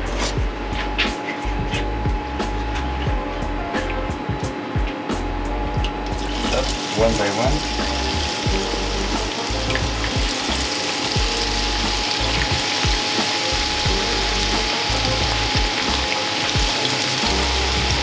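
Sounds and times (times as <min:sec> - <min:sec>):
food sizzling in hot oil: 0:06.2 - 0:18.0.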